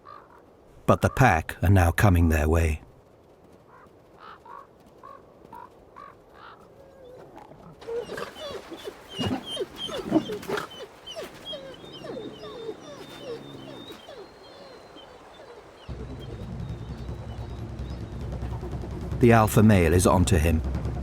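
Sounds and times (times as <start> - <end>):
wolves yelping and whining: 6.9 - 18.6.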